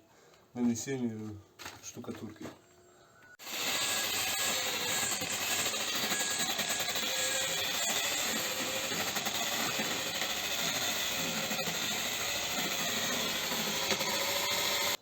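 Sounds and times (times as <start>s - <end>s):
grinder with wire brush scrubbing brick: 3.4s - 15.0s.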